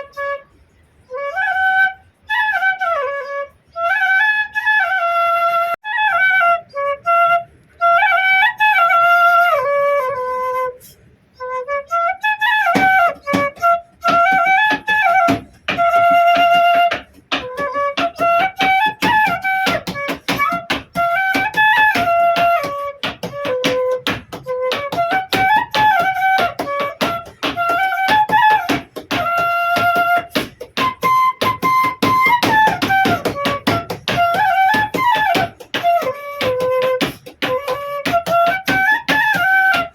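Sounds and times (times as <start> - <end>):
bamboo flute melody: 0.0 - 39.9
rapid rhythmic tapping: 12.6 - 39.9.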